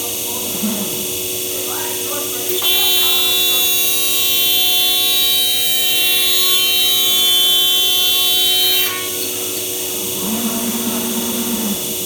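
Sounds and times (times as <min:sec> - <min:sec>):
low machine hum: 0:00.0 - 0:12.0
router spindle high whine: 0:02.5 - 0:10.0.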